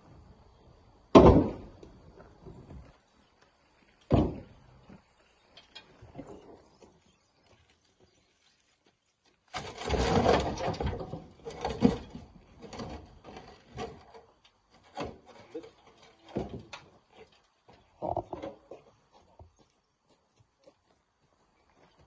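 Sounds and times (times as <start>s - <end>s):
stones knocking and clunking: 4.0s - 6.5s, 9.5s - 17.1s, 17.7s - 19.5s
rocks scraping and grinding: 9.4s - 17.1s.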